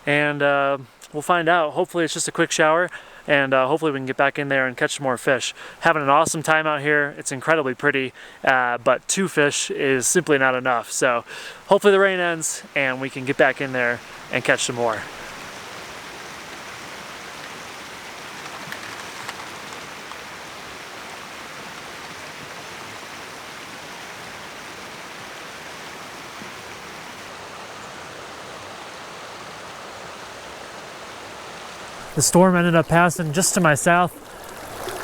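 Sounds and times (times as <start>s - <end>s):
rushing water hiss: 5.5s - 6.3s, 10.7s - 35.0s.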